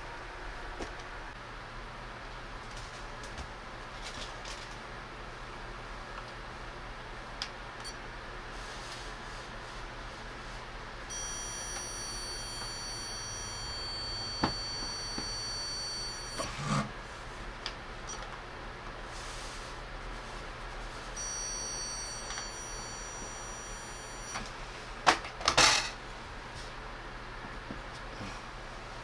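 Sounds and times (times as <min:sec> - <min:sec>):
stud finder beeping tone: 0:11.1 - 0:16.7, 0:21.1 - 0:24.6.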